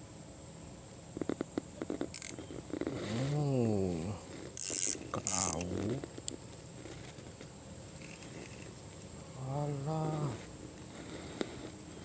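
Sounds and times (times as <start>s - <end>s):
fishing reel ratcheting: 2.1s - 2.4s, 4.6s - 5.7s.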